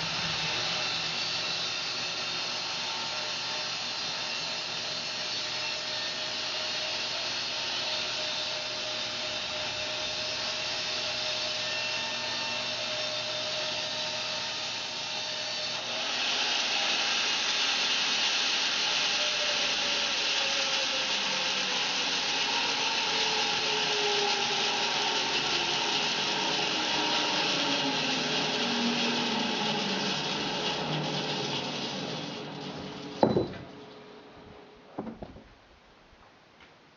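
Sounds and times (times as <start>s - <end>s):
bandsaw mill cutting log: 0.0s - 33.8s.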